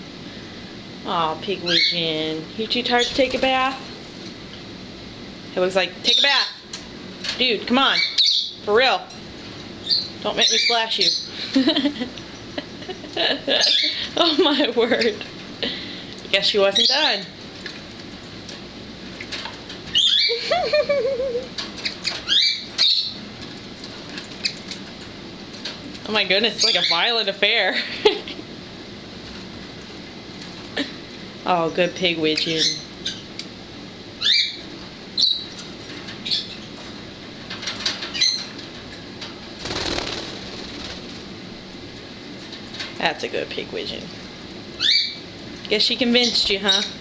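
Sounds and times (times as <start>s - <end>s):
budgie wings beating and splashing: 39.6s - 41.3s.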